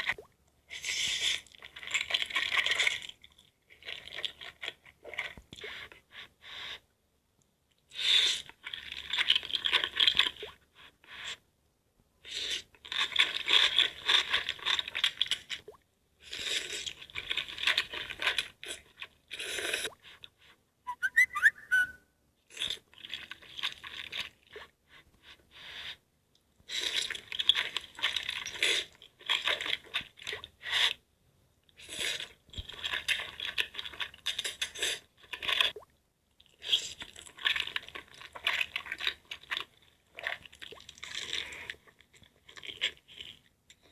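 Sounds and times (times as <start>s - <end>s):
crunching crisp food: 8.0s - 10.5s, 12.3s - 19.9s, 31.8s - 35.8s, 36.4s - 43.9s
whistle-like squeak: 20.9s - 22.1s.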